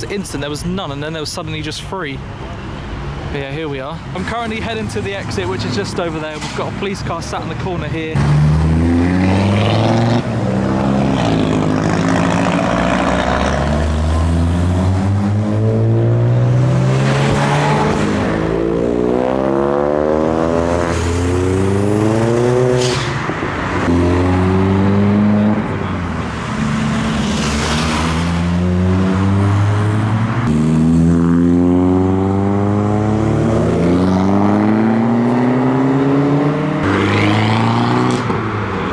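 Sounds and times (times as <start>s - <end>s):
cars revving past: 7.9s - 38.9s.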